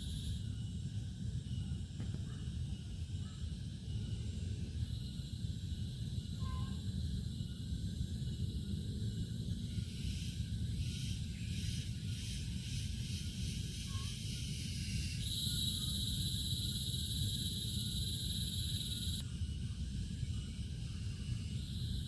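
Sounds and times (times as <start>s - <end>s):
insects chirring: 0.0s - 1.7s, 2.8s - 22.0s
high insect buzz: 10.9s - 19.2s.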